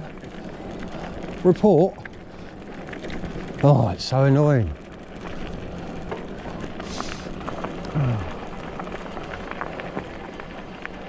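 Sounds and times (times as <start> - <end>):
bike tyres crackling over gravel: 0.0 - 11.0
rider grunting: 5.6 - 8.9.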